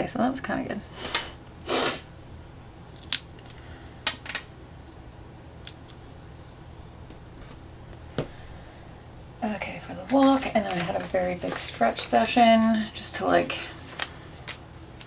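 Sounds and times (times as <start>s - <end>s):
faint low hum: 0.0s - 15.0s
sharp small clicks and snips: 3.0s - 3.6s.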